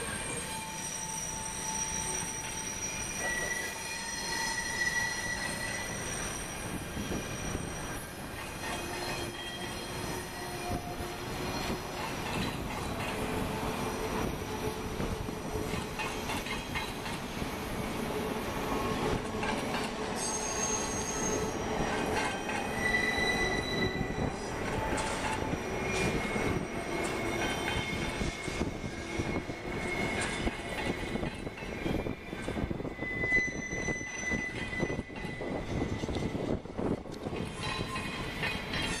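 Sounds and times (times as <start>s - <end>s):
freight train wheels rumbling: 0.0s - 39.0s
wheel flanges squealing: 19.2s - 36.4s.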